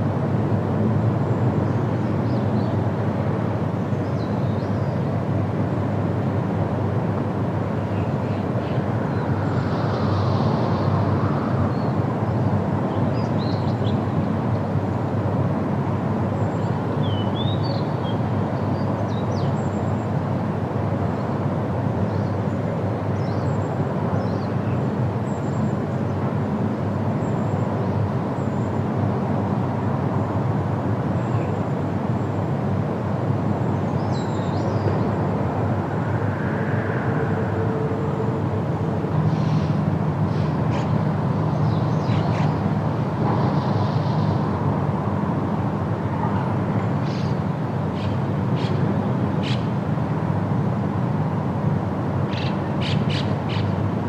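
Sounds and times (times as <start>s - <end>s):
low rumbling noise: 34.7s - 46.3s.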